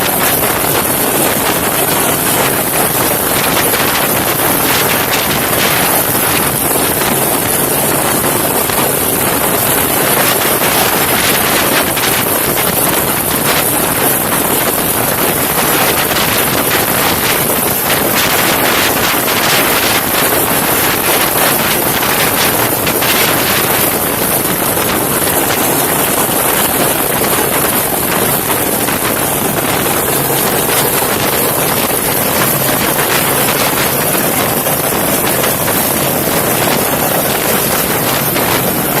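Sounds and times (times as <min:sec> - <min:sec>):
helicopter rotor and engine: 0:00.0 - 0:39.0
wind buffeting microphone: 0:00.0 - 0:39.0.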